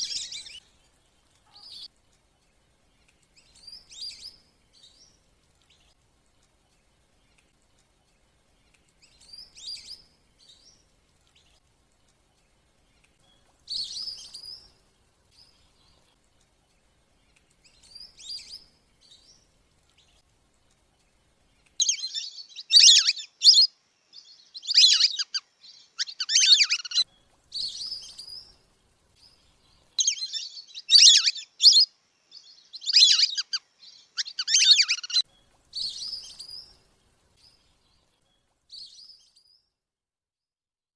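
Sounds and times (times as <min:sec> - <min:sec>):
whistling ducks calling: 0:21.8 - 0:23.7, 0:24.6 - 0:25.4, 0:26.0 - 0:27.0, 0:30.0 - 0:31.9, 0:32.8 - 0:33.6, 0:34.2 - 0:35.2.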